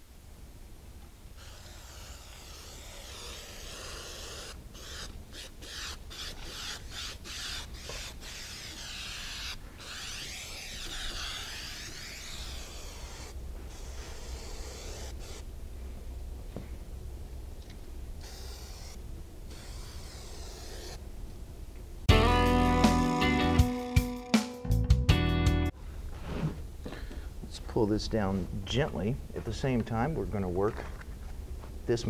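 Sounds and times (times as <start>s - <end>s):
aerosol spray can hissing: 1.4s - 15.4s, 18.2s - 21.0s.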